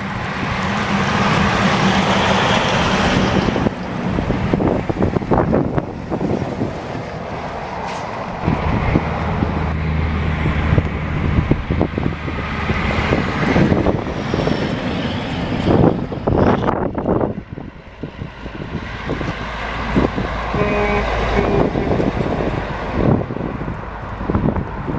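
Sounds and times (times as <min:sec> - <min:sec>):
dump truck engine running: 0:15.3 - 0:24.9.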